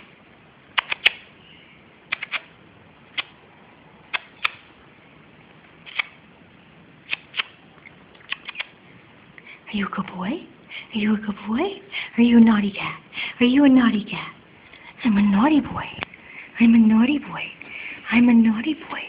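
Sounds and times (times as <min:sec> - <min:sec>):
faint steady background noise: 0:00.0 - 0:19.0
sharp clicks: 0:00.8 - 0:01.3, 0:02.1 - 0:02.5, 0:04.1 - 0:04.7, 0:05.9 - 0:06.2, 0:07.1 - 0:08.8.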